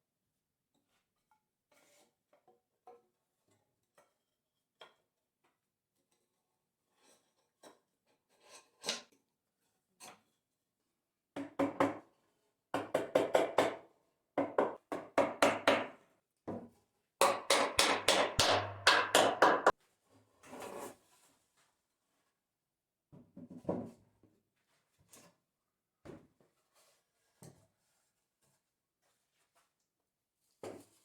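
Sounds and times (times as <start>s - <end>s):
hand tool working wood: 17.6s - 19.7s.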